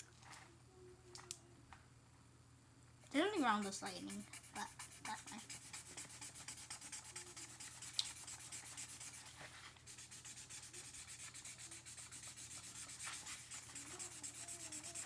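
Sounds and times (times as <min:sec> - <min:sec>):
marker scribbling on paper: 0:03.4 - 0:15.0.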